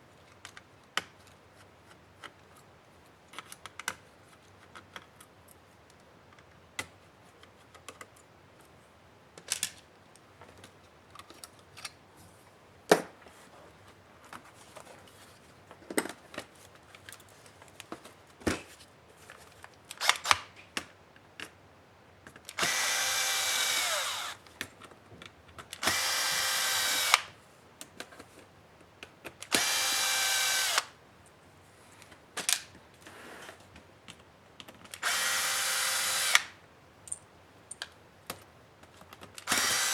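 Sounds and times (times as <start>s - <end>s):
plastic parts and screws clicking: 22.3s - 27.3s, 38.8s - 39.9s
power screwdriver whine: 22.6s - 24.4s, 25.8s - 27.3s, 29.5s - 30.9s, 35.0s - 36.6s, 39.5s - 39.9s.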